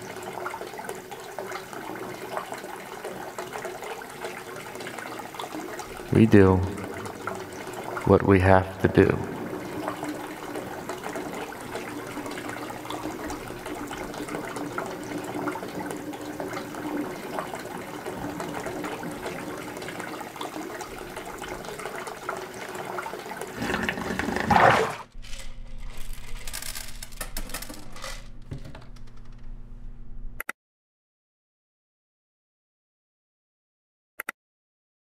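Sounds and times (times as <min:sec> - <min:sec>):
water running and churning: 0:00.0 - 0:25.1.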